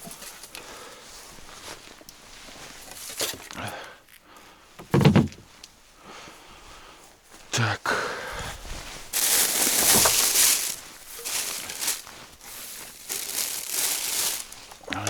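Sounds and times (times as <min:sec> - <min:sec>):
papers rustling and crumpling: 0:08.6 - 0:15.0.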